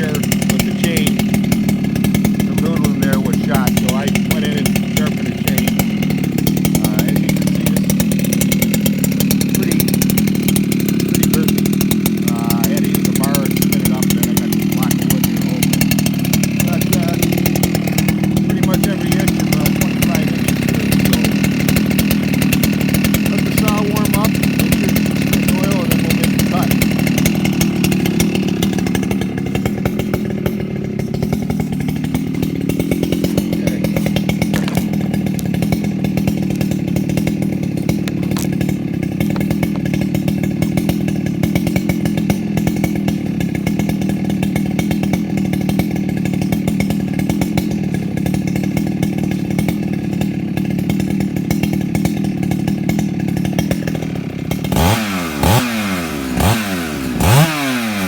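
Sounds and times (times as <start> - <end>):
chainsaw idling and revving: 0.0 - 58.0.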